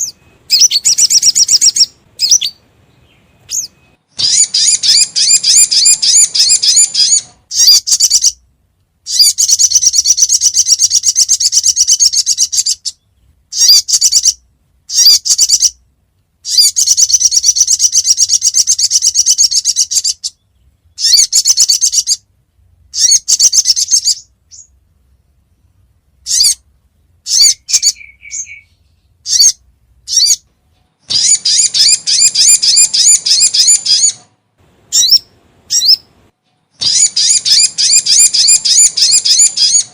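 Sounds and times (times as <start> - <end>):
bird chattering trills: 0.0 - 8.4, 9.1 - 15.8, 16.4 - 22.3, 22.9 - 24.7, 26.2 - 30.4, 31.1 - 34.2, 34.9 - 36.1, 36.8 - 39.9
single bird chirps: 0.0 - 8.4, 9.1 - 15.8, 22.9 - 24.8, 27.2 - 34.3, 34.9 - 36.1, 36.8 - 39.9.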